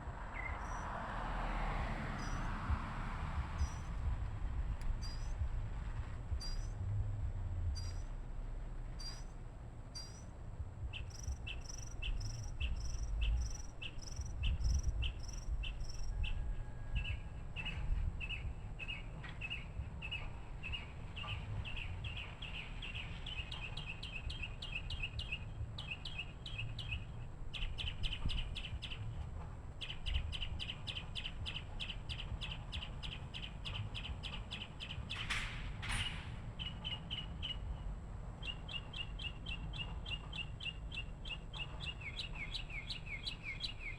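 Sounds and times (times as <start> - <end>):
steady low rumble: 2.0 - 43.9
bird chirping: 5.0 - 5.4, 6.3 - 6.8, 7.7 - 8.1, 9.0 - 29.2, 29.8 - 37.8, 38.4 - 43.9.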